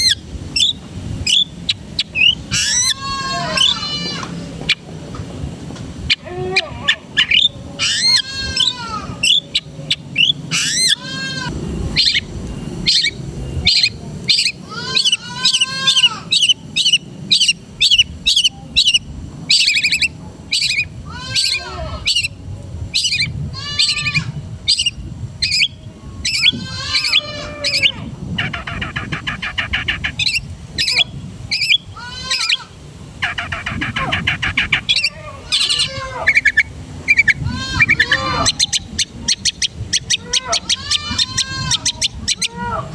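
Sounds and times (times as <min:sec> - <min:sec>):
bird singing chirps and whistles: 0:00.0 - 0:03.0, 0:07.2 - 0:11.0, 0:12.0 - 0:20.9, 0:24.7 - 0:32.6, 0:33.2 - 0:42.6.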